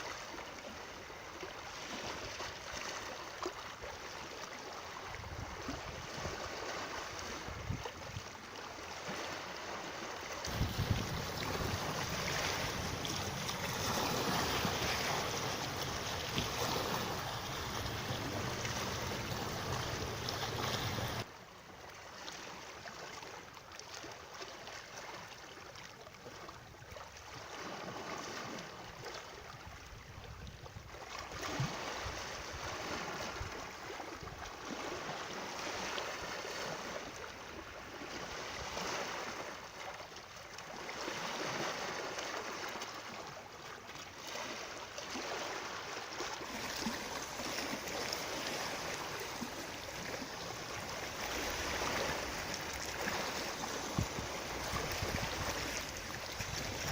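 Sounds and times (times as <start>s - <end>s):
running water: 10.4s - 21.3s, 45.0s - 56.9s.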